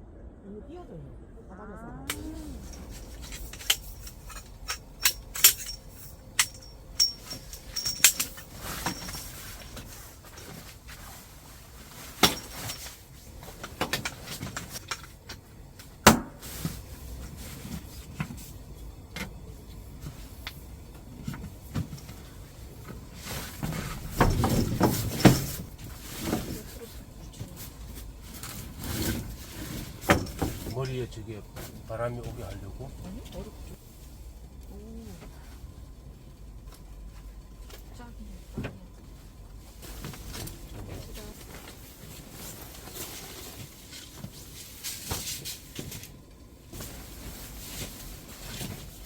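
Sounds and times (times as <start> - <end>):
tableware and utensils clinking: 2.1 - 10.6.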